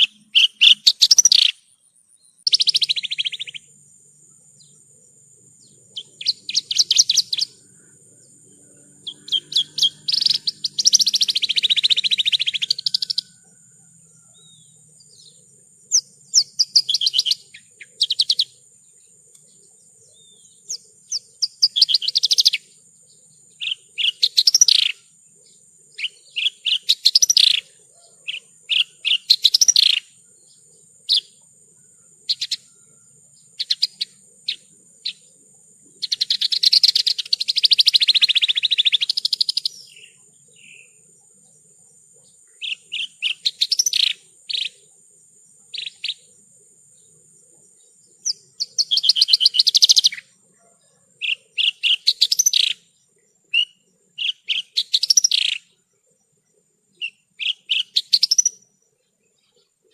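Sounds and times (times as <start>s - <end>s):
lark chirping and trilling: 0.0s - 1.8s, 2.4s - 3.7s, 5.6s - 7.7s, 9.0s - 13.5s, 14.3s - 18.6s, 19.4s - 22.7s, 23.5s - 30.1s, 32.3s - 32.7s, 33.6s - 35.3s, 36.0s - 41.0s, 42.6s - 44.8s, 45.7s - 46.3s, 48.2s - 50.3s, 51.2s - 52.9s, 53.5s - 55.8s, 57.0s - 58.7s.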